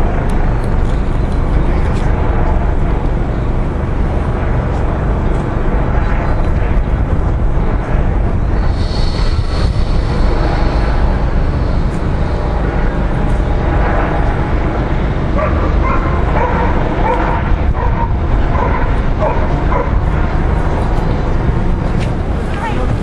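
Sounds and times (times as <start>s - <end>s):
helicopter drone overhead: 0.0s - 23.0s
dog barking and yelping: 15.4s - 20.0s.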